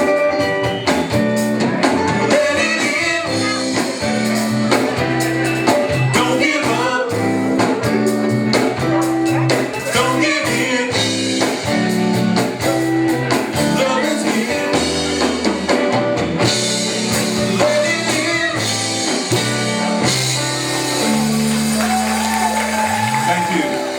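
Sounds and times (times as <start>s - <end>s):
live band with guitar and drums: 0.0s - 23.9s
person singing: 1.8s - 11.7s, 13.3s - 15.5s, 16.9s - 19.2s.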